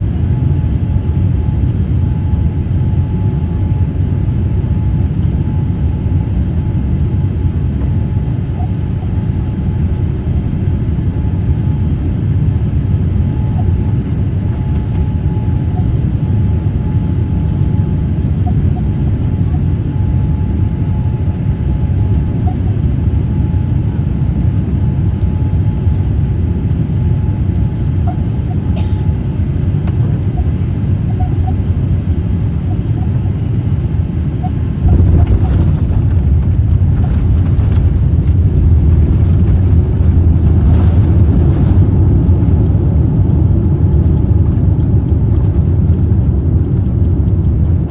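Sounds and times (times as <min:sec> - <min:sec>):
jet engines and airflow rumble: 0:00.0 - 0:47.9.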